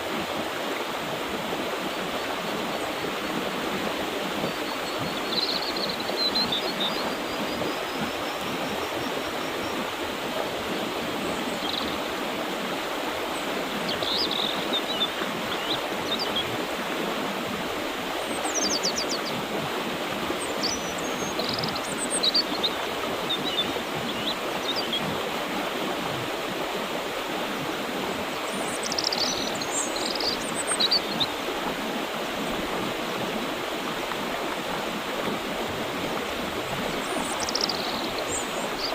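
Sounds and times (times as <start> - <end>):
river water rushing over rocks: 0.0 - 38.9
small birds chirping: 4.4 - 9.9, 28.4 - 31.4, 36.9 - 38.9.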